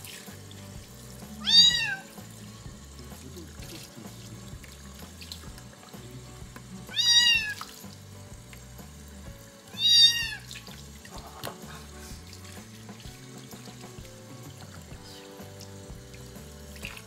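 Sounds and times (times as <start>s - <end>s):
tap water running into sink: 0.0s - 17.0s
kitten meowing: 1.4s - 2.1s, 6.9s - 7.7s, 9.7s - 10.5s.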